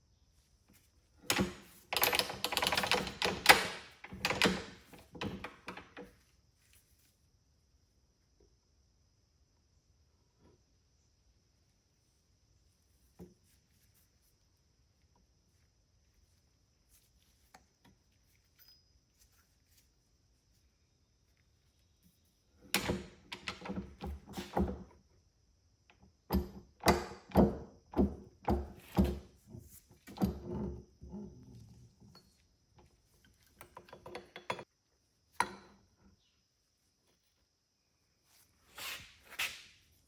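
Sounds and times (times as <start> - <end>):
metal parts knocking and clunking: 1.3 - 6.2, 22.7 - 24.9, 26.3 - 31.2, 32.0 - 34.7, 35.4 - 36.2.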